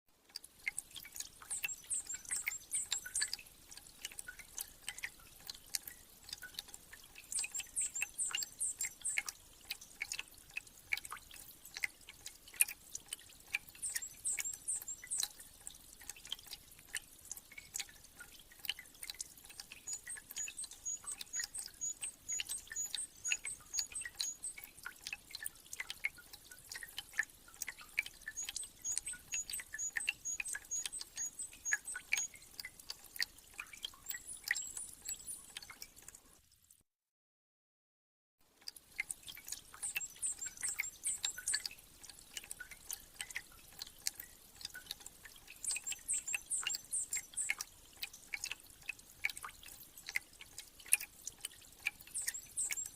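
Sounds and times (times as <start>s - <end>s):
water dripping: 0.2s - 36.8s, 38.4s - 52.9s
small birds twittering: 1.4s - 3.4s, 7.1s - 9.3s, 13.7s - 15.3s, 19.5s - 24.7s, 27.7s - 32.5s, 34.0s - 35.6s, 39.8s - 41.7s, 45.6s - 47.6s, 52.1s - 52.9s.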